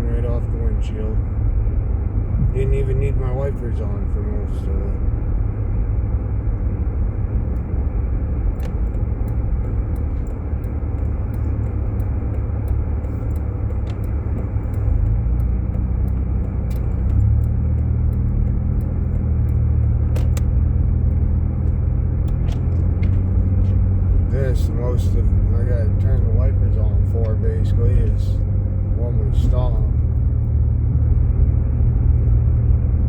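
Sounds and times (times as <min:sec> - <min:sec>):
car engine and road rumble: 0:00.0 - 0:33.0
faint ticks: 0:07.5 - 0:23.8.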